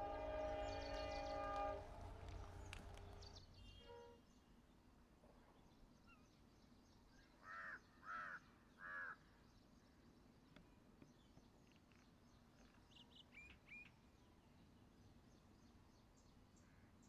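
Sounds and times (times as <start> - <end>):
bird calling: 0.0 - 3.3.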